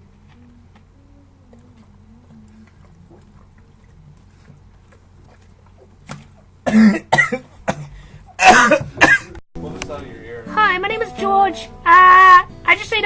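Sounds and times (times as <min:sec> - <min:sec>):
room hum: 0:00.0 - 0:13.0
person coughing hard: 0:06.6 - 0:09.4.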